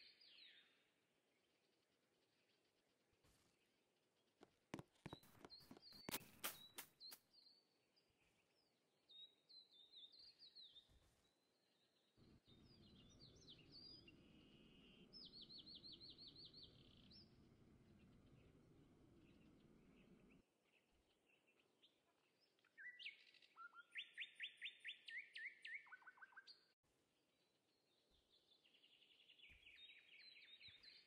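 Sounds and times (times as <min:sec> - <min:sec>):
bird chirping: 0:00.0 - 0:26.8, 0:27.4 - 0:31.0
sharp clicks: 0:04.4 - 0:07.2.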